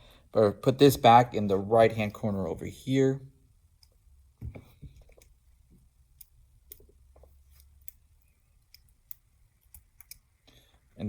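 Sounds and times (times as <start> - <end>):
small clicks and taps: 3.8 - 10.6.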